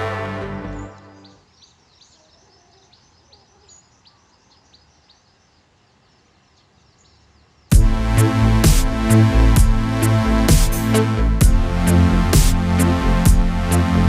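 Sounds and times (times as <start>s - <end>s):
faint high bird chirps: 0.6s - 7.7s.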